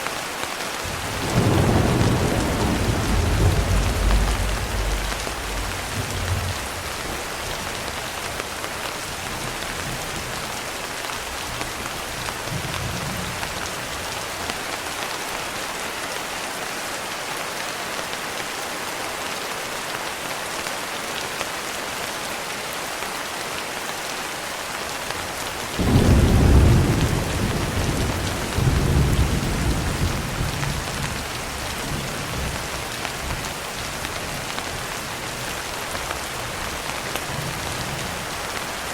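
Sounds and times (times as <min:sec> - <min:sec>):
steady rain: 0:00.0 - 0:38.9
thunder rumbling: 0:00.8 - 0:07.7, 0:25.8 - 0:32.7
thunderclap: 0:00.9 - 0:07.0, 0:25.8 - 0:31.2.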